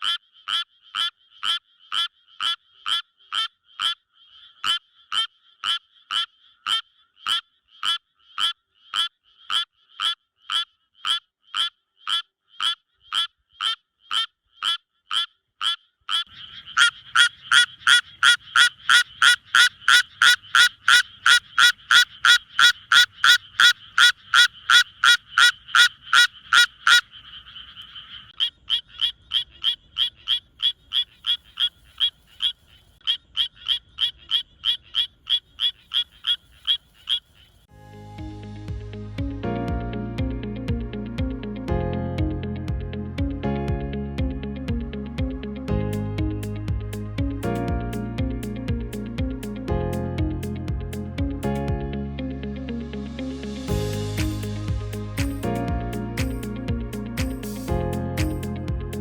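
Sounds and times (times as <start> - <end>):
frog croaking: 0.0 - 37.7
low hum: 37.7 - 59.0.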